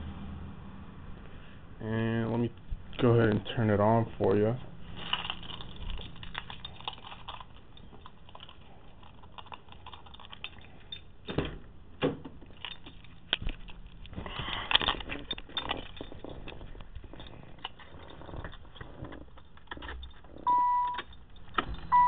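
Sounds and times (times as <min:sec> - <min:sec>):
car keys jangling: 0:04.8 - 0:11.2, 0:12.4 - 0:22.0.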